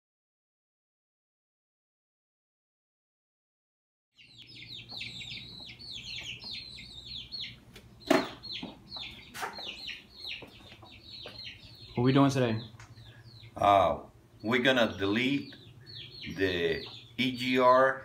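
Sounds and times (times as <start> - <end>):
birds chirping: 4.2 - 18.0
low steady hum: 4.2 - 18.0.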